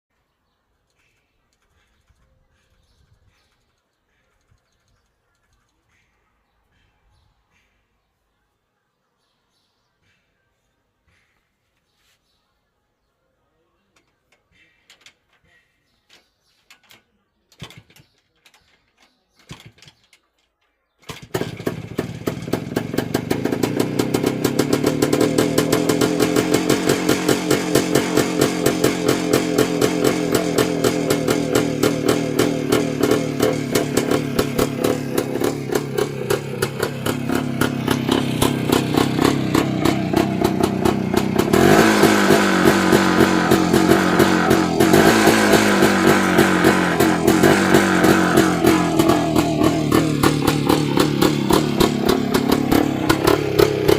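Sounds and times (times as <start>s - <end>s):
two-stroke motorcycle engine running: 21.0s - 53.9s.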